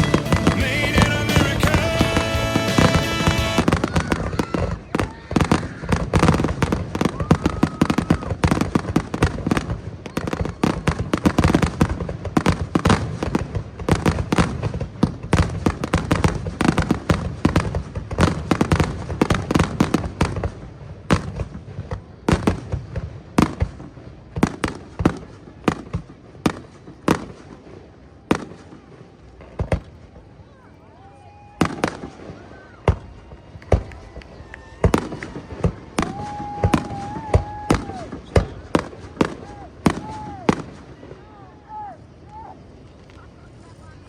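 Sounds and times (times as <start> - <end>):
fireworks bursts and crackling bangs: 0.0 - 30.6, 31.3 - 44.0.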